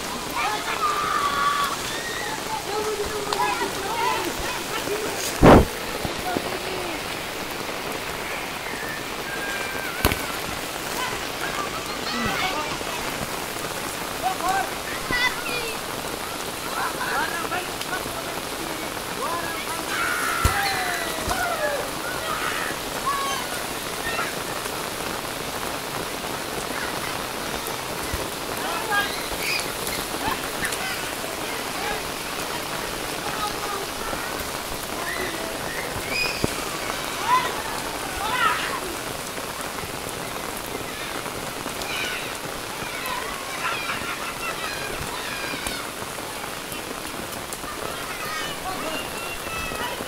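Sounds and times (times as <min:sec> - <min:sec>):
heavy rain pouring: 0:00.0 - 0:50.0.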